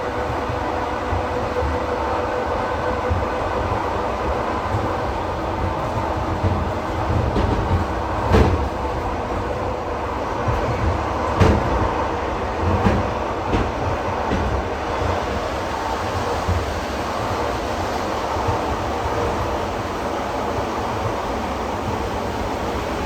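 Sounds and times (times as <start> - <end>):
train rumbling: 0.0 - 23.0
wheels knocking on rail joints: 3.0 - 9.7, 10.4 - 15.4.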